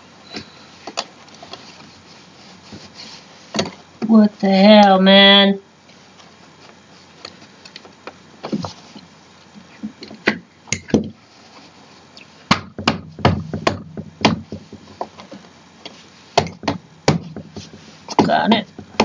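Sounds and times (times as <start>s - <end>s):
chair parts knocking and clacking: 12.5s - 15.4s, 16.4s - 19.0s.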